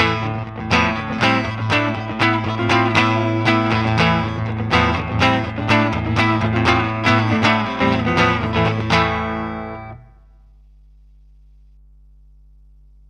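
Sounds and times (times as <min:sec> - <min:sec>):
electric guitar picked notes: 0:00.0 - 0:10.2.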